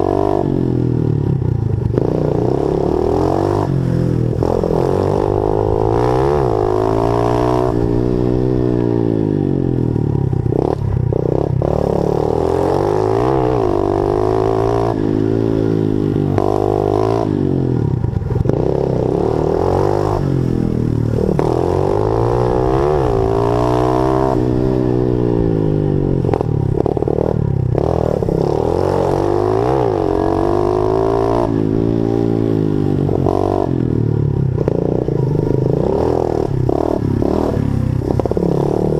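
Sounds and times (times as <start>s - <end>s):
pit bike engine revving: 0.0s - 38.9s.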